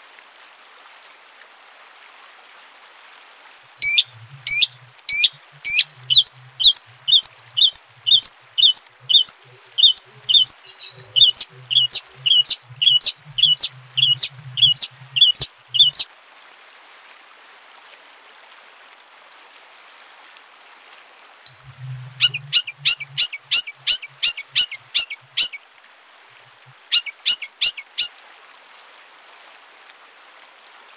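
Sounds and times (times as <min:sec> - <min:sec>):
faint steady hiss: 0:00.0 - 0:30.9
songbird chip calls: 0:03.8 - 0:16.0, 0:21.5 - 0:25.6, 0:26.9 - 0:28.1.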